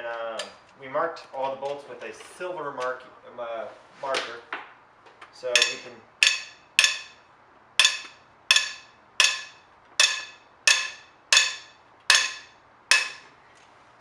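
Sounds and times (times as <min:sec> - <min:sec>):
bolts popping metallically: 0:05.2 - 0:13.3.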